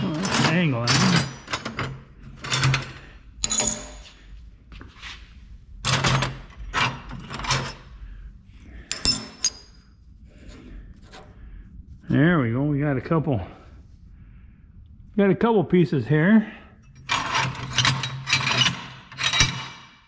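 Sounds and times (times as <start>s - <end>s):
scrap metal clanking and scraping: 0.0s - 4.2s, 5.8s - 7.9s, 16.8s - 20.0s.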